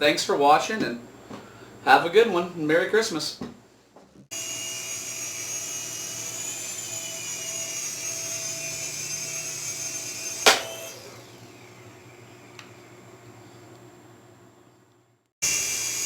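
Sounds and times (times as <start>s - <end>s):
toy helicopter motors whining: 4.3s - 11.8s, 15.4s - 16.0s
sharp knock: 10.5s - 10.8s.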